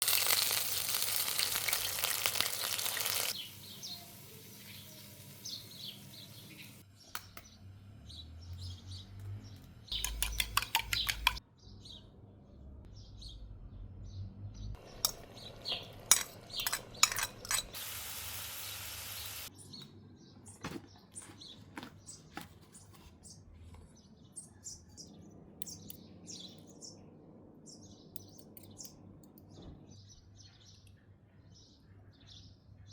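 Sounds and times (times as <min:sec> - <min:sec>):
food sizzling in a pan: 0:00.0 - 0:06.8, 0:14.8 - 0:19.5
birds chirping faintly: 0:00.2 - 0:32.9
utensils scraping against pots: 0:10.0 - 0:11.4, 0:14.9 - 0:18.1.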